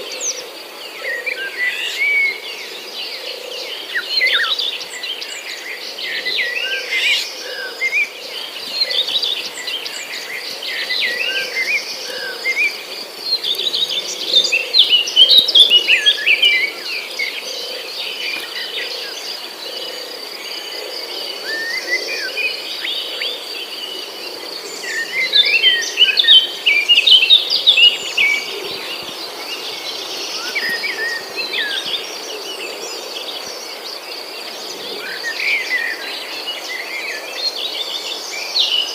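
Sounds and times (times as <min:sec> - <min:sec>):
birds chirping and twittering: 0:00.0 - 0:38.9
high insect drone: 0:00.0 - 0:38.9.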